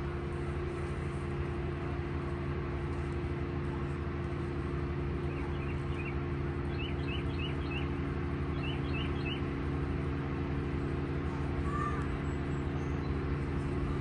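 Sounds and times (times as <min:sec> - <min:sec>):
low machine hum: 0:00.0 - 0:14.0
small bird chirping: 0:05.3 - 0:07.9, 0:08.5 - 0:09.4.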